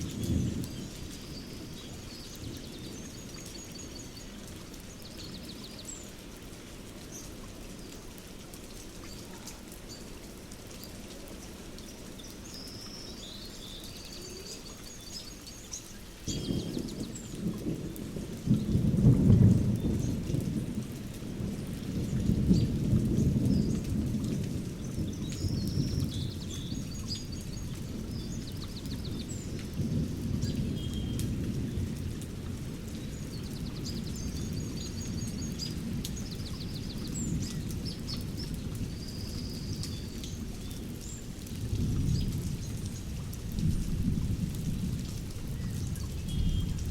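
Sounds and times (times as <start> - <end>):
thunder rumbling: 0.0 - 1.8, 16.3 - 41.0, 41.6 - 46.9
steady rain: 0.0 - 46.9
small birds chirping: 10.8 - 18.0, 32.9 - 43.1.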